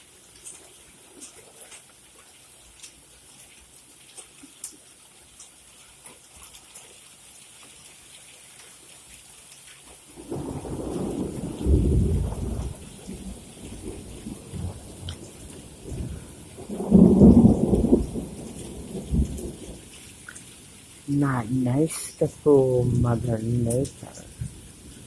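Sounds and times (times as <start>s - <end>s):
rain falling: 0.0s - 25.0s
water dripping: 0.0s - 25.0s
thunder rumbling: 10.2s - 20.0s, 21.1s - 25.0s.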